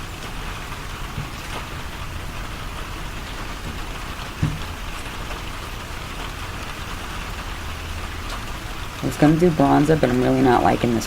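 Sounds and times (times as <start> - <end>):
steady rain falling: 0.0 - 11.0
soft thump: 4.4 - 4.7.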